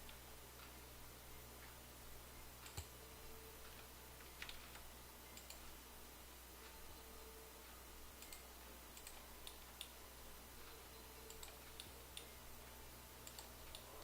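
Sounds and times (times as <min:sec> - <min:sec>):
low steady hum: 0:00.0 - 0:14.0
computer mouse clicks: 0:02.6 - 0:03.0, 0:03.6 - 0:05.8, 0:08.1 - 0:10.0, 0:11.2 - 0:12.3, 0:13.2 - 0:14.0.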